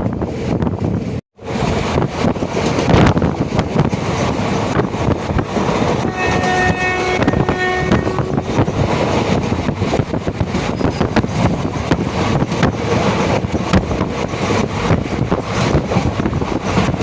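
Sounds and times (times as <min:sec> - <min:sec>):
train wheels rumbling on track: 0:00.0 - 0:17.0
wind noise: 0:00.0 - 0:17.0
train horn: 0:06.0 - 0:08.7.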